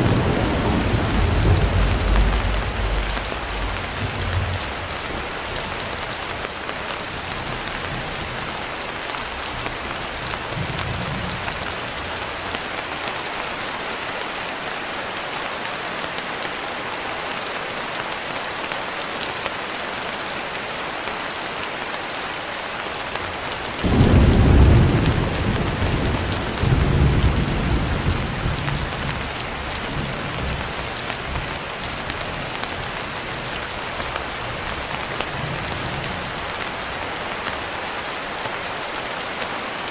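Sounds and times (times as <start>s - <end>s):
thunderclap with rolling rumble: 0.0s - 6.0s, 23.8s - 36.5s
rain hiss: 0.0s - 39.9s.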